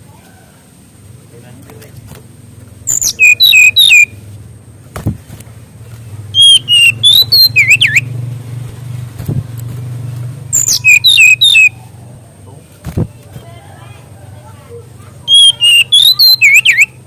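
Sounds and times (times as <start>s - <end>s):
bird singing whistled notes: 2.9s - 4.2s, 6.3s - 8.2s, 10.5s - 11.8s, 15.3s - 17.0s.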